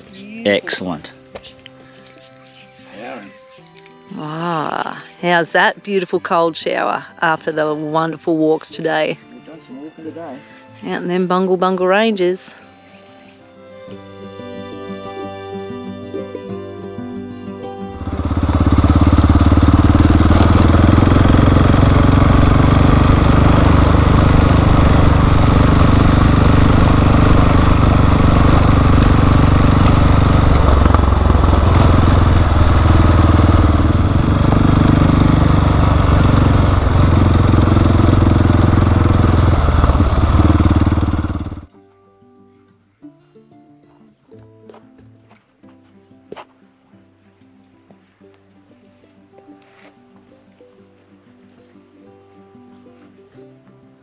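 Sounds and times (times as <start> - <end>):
motorcycle engine running: 17.9 - 41.7.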